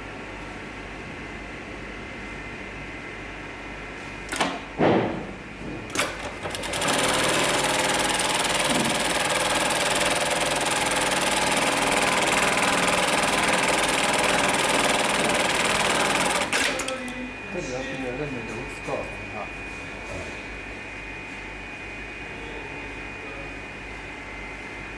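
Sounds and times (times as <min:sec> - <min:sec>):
sewing machine sewing: 0:05.9 - 0:17.0
sewing machine knocks: 0:06.3 - 0:16.6.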